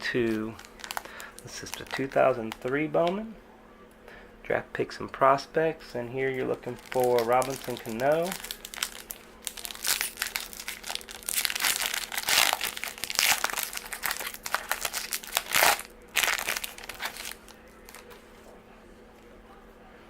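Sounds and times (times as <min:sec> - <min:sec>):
foil card pack tearing: 0:00.0 - 0:02.6, 0:06.5 - 0:18.1
wrapper crinkling: 0:00.0 - 0:02.8, 0:06.4 - 0:18.4.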